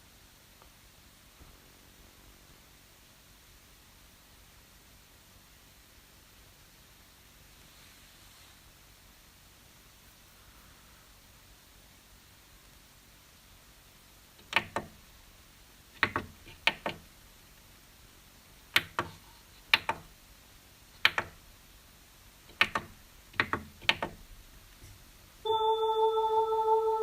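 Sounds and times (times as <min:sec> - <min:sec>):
faint hiss: 0:00.0 - 0:27.0
sharp clicks or knocks: 0:14.4 - 0:15.0, 0:16.0 - 0:17.1, 0:18.8 - 0:20.1, 0:21.0 - 0:21.4, 0:22.5 - 0:24.2
loud steady held note: 0:25.4 - 0:27.0.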